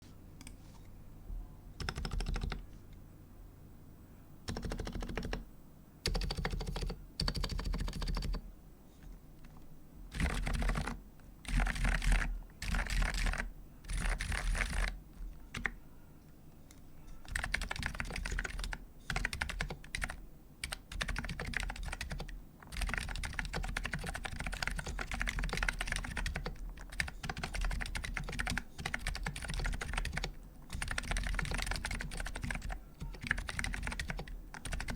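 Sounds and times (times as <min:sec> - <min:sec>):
typing on keyboard: 0:01.8 - 0:02.6, 0:04.5 - 0:05.4, 0:06.1 - 0:08.4, 0:10.1 - 0:15.8, 0:17.2 - 0:34.9.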